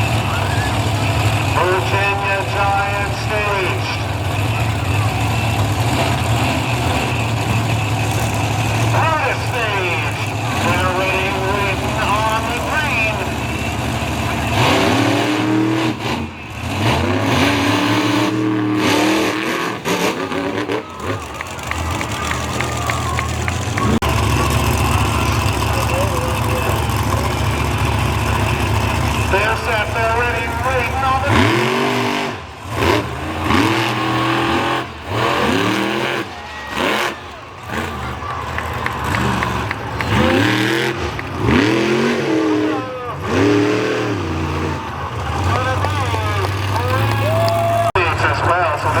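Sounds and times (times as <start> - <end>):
truck engine revving hard: 0.0 - 49.0.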